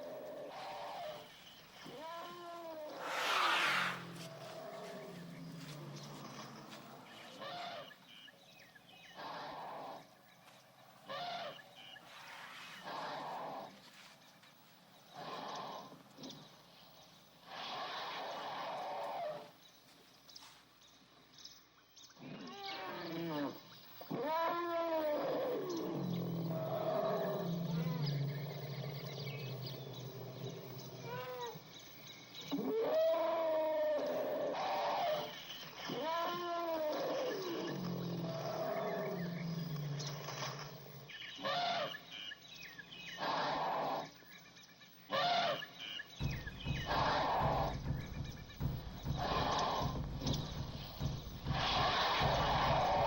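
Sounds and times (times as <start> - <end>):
long animal calls: 0.0 - 8.0, 9.1 - 10.2, 11.1 - 14.1, 15.1 - 16.4, 17.4 - 19.5, 22.2 - 31.7, 32.4 - 40.7, 41.3 - 42.1, 43.1 - 44.2, 45.1 - 53.0
rough noisy animal calls: 0.0 - 10.3, 11.0 - 14.2, 15.0 - 19.6, 22.2 - 44.2, 45.0 - 53.0
low rumble: 46.2 - 53.0.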